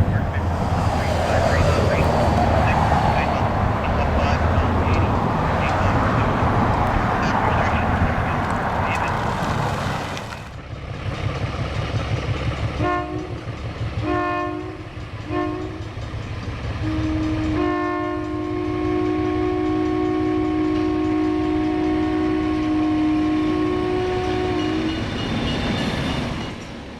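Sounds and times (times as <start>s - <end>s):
diesel locomotive rumbling: 0.0s - 26.9s
multi-note air horn blasts: 12.8s - 13.3s, 14.0s - 15.8s, 16.8s - 24.9s.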